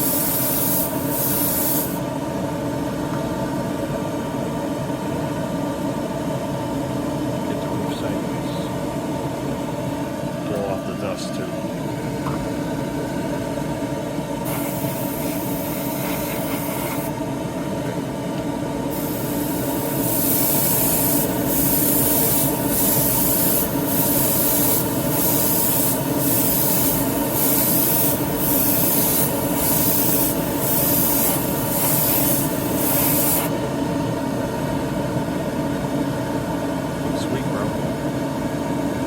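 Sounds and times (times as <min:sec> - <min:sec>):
airbrush hissing: 0:00.0 - 0:02.0, 0:14.4 - 0:17.2, 0:18.9 - 0:33.6
compressor humming: 0:00.0 - 0:39.0.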